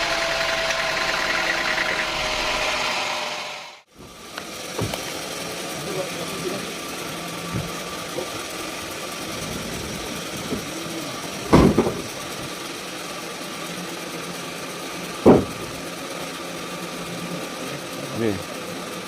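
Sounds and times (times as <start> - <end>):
sawmill machinery running: 0.0 - 19.0
loud thumps: 4.7 - 5.0, 11.5 - 12.5, 15.2 - 15.9.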